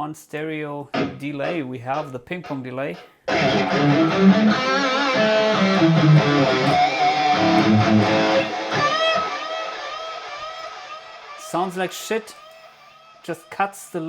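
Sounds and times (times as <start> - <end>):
electric guitar with echoing delay: 1.0 - 1.2, 3.3 - 11.9.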